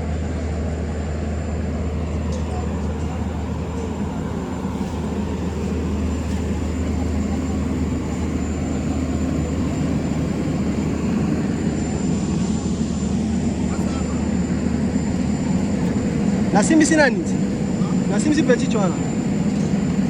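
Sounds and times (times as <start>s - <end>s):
large engine droning: 0.0s - 20.0s.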